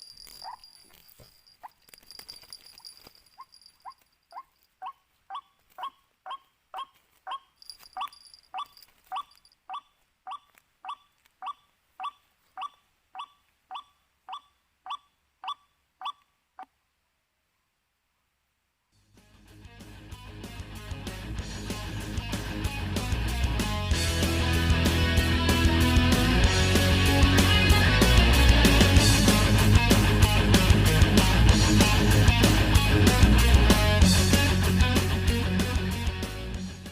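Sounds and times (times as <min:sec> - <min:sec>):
waterhen calling: 0:03.8 - 0:16.7.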